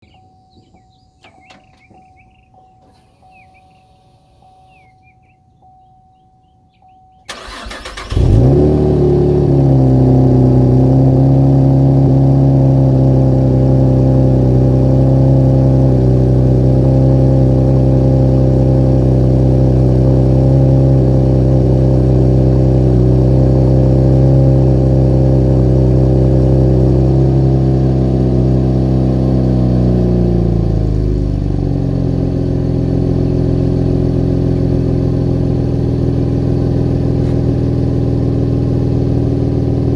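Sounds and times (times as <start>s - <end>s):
engine cranking: 7.3s - 8.7s
car engine idling: 7.3s - 39.9s.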